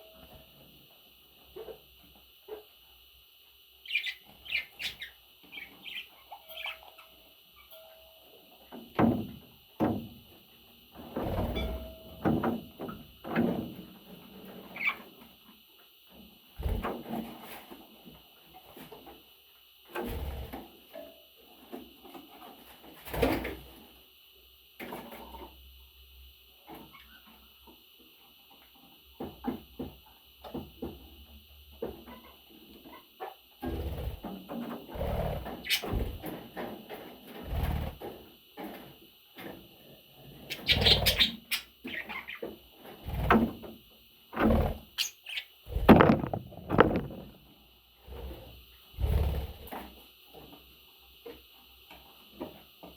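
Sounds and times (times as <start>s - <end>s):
budgerigars chirping: 3.9s - 7.0s, 40.5s - 42.4s
dull knocks and bumps: 45.8s - 47.2s.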